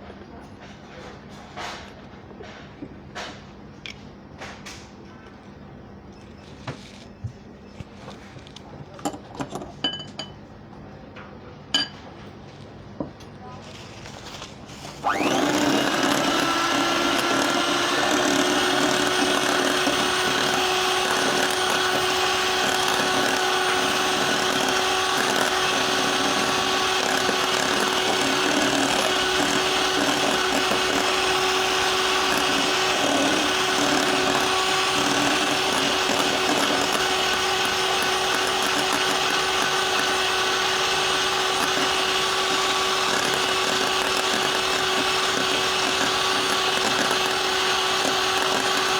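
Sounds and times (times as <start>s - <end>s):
electric mixer humming: 14.9s - 48.9s.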